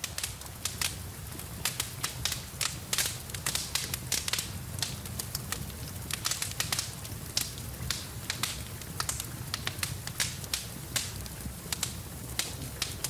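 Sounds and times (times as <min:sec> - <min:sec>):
sharp pops from fire: 0:00.0 - 0:13.0
wood fire crackling: 0:00.0 - 0:13.0.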